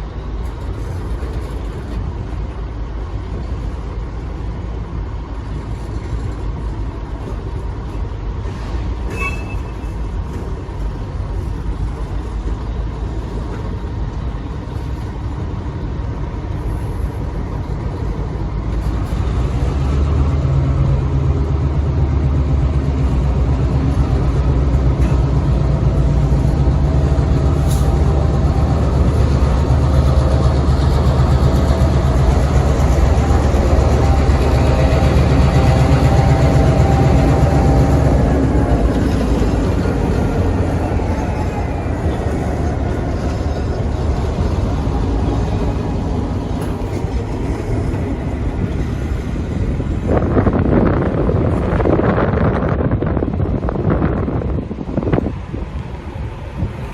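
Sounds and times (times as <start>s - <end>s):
diesel locomotive engine drone: 0.0s - 56.9s.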